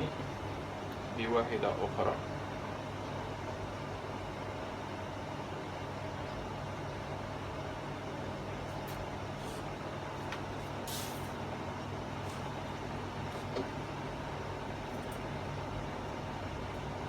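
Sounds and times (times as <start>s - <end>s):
low background hum: 0.0s - 17.0s
brief hiss: 10.8s - 11.4s.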